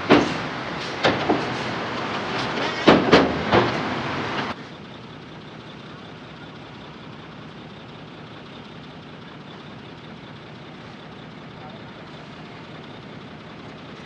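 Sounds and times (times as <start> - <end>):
loud clattering with knocks: 0.0 - 4.5
heavy diesel engine running: 0.0 - 14.0.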